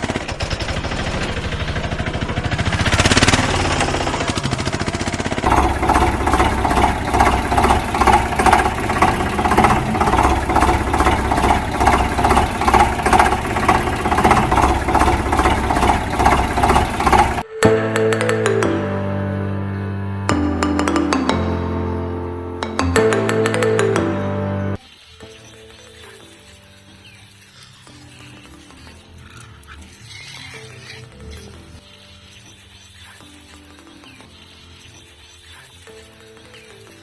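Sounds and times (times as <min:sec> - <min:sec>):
engine rattling and chugging: 0:00.0 - 0:17.5.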